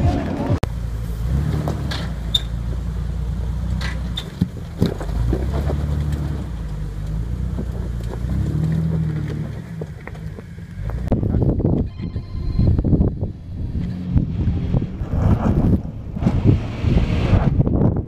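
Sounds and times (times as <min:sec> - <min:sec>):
car engine running under load: 0:00.0 - 0:11.8.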